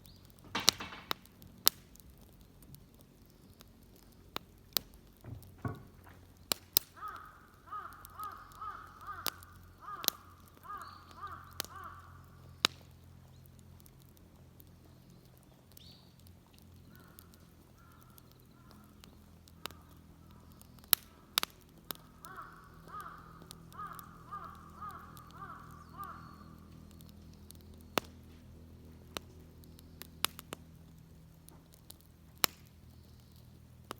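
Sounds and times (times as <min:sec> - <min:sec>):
sharp snaps and clicks: 0:00.0 - 0:33.9
crow cawing: 0:06.9 - 0:12.5, 0:16.9 - 0:20.4, 0:21.1 - 0:26.7.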